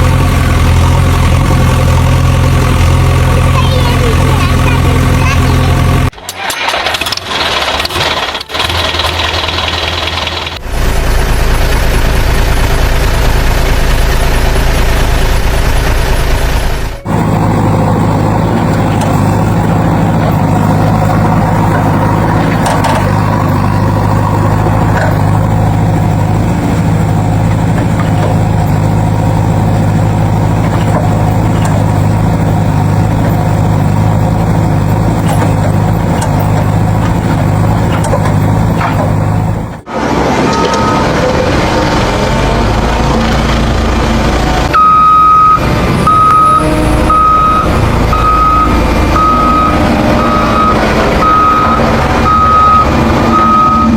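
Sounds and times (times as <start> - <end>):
diesel tractor engine running: 0.0 - 53.9.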